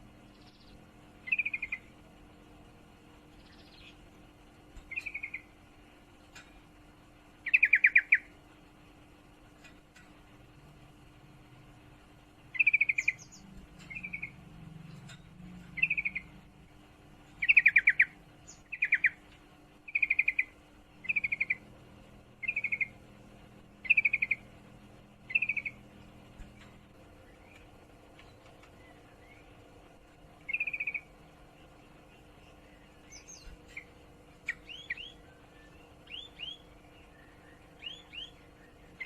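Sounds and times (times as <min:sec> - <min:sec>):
bird chattering calls: 0:00.4 - 0:01.9, 0:04.8 - 0:05.5, 0:07.4 - 0:08.3, 0:12.5 - 0:14.4, 0:15.7 - 0:16.4, 0:17.4 - 0:19.2, 0:19.9 - 0:21.7, 0:22.4 - 0:23.0, 0:23.8 - 0:24.5, 0:25.2 - 0:26.1, 0:30.4 - 0:31.1, 0:32.1 - 0:35.4.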